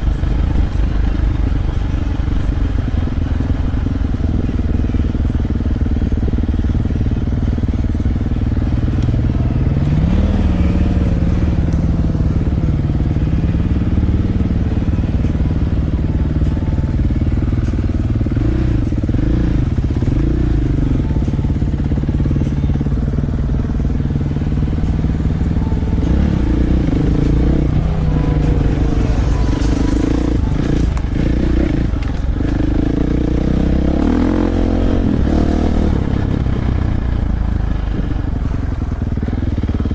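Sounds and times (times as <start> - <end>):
dirt bike engine revving: 8.4 - 15.9, 17.5 - 36.7.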